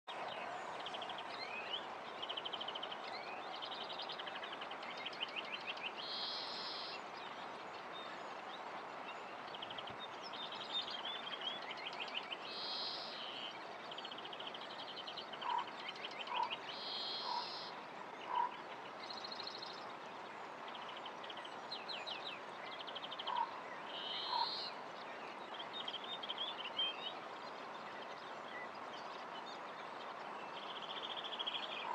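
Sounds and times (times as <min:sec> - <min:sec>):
birds singing trills and chirps: 0:09.1 - 0:17.7, 0:20.6 - 0:31.9.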